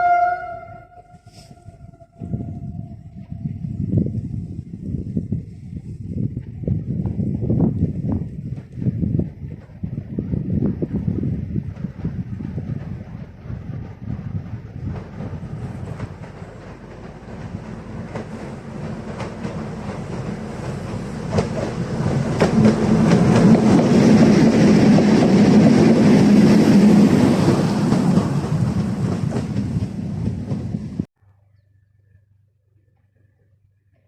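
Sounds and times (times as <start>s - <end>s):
train passing: 0.0s - 31.1s
wheels clattering over rail joints: 11.6s - 31.1s.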